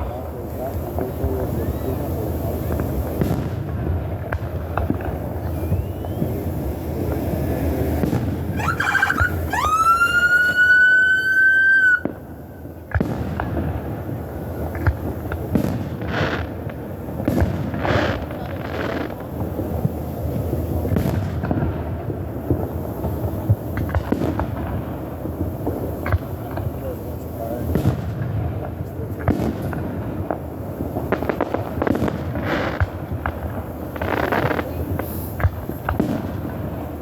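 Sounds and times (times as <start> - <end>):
fireworks booming and crackling: 0.0 - 37.0
sharp firework bang: 2.6 - 12.3, 12.9 - 14.0, 14.8 - 16.6
shrill firework whistle: 5.4 - 6.6, 8.5 - 12.4.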